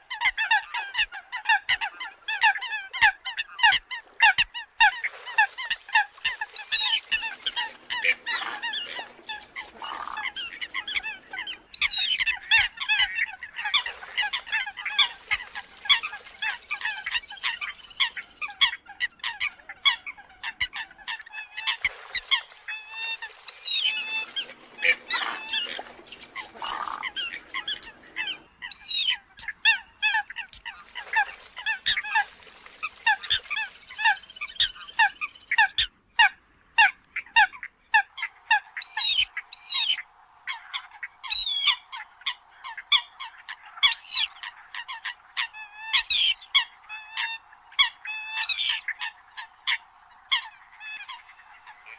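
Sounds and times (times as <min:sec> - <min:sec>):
coots honking calls: 0:07.4 - 0:16.0, 0:24.0 - 0:30.6.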